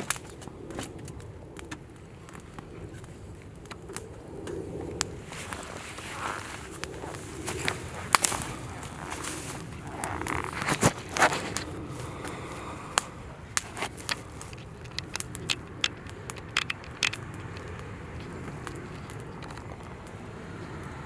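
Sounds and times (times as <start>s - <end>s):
fire crackling and popping: 0.0s - 21.0s.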